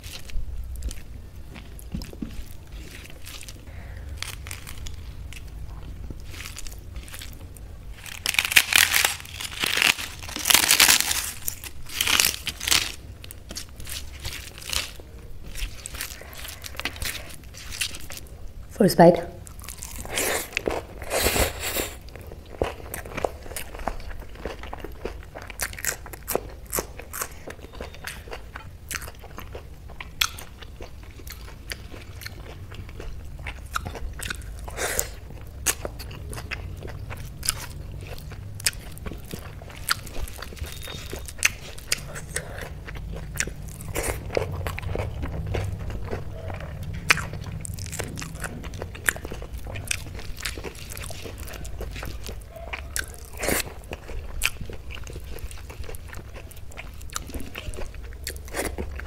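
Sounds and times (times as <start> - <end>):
steady low hum: 0.0 - 59.0
person chewing with mouth clicks: 19.4 - 59.0.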